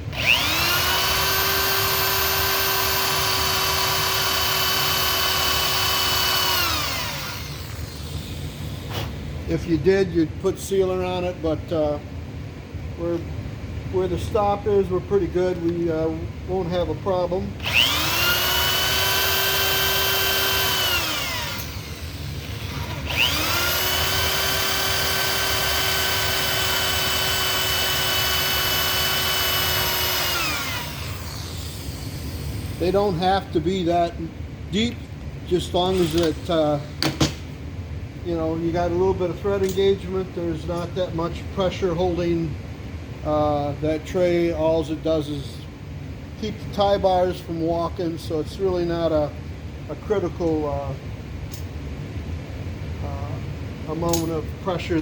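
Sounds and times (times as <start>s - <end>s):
electric hand drill running: 0.1s - 9.0s, 17.6s - 33.0s.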